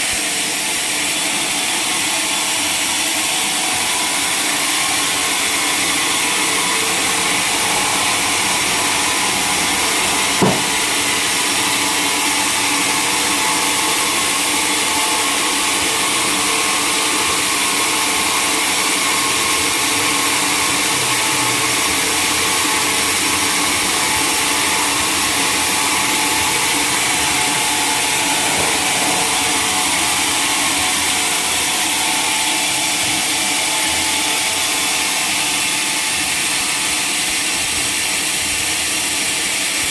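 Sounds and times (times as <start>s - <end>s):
sawmill machinery running: 0.0s - 39.9s
sharp knock: 10.4s - 10.9s.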